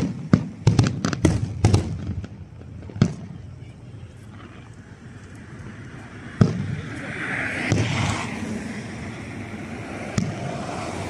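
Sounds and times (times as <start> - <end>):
firework shells booming: 0.0 - 3.6, 6.3 - 7.0, 7.6 - 8.2, 10.0 - 10.8.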